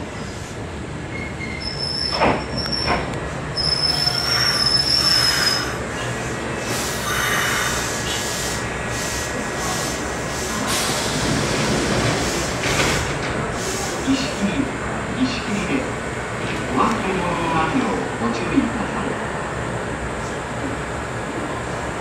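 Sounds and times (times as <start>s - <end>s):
train running rumble: 0.0s - 22.0s
train wheels squealing: 1.1s - 3.0s, 3.6s - 5.8s.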